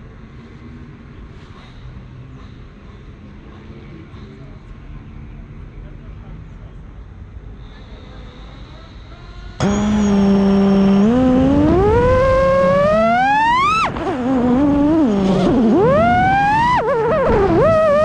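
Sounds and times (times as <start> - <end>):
quadcopter motors whining: 7.8 - 18.0.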